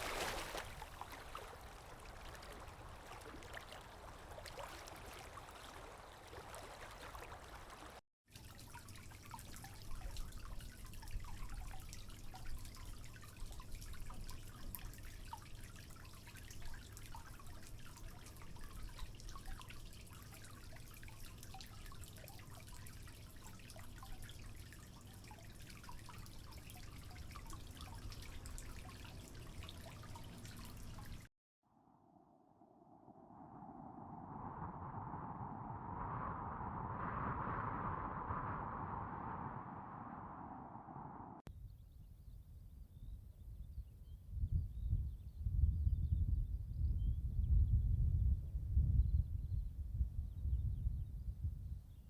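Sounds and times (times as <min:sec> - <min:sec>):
running water: 0:00.0 - 0:31.3
water dripping and trickling: 0:00.0 - 0:31.3
low rumble: 0:31.7 - 0:41.5.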